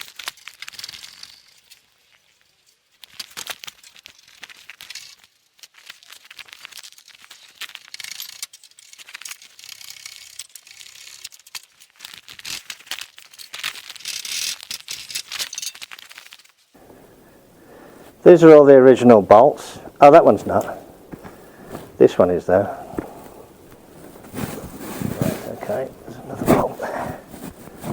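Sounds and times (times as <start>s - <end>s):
spanner and bolts clinking: 13.2s - 16.5s.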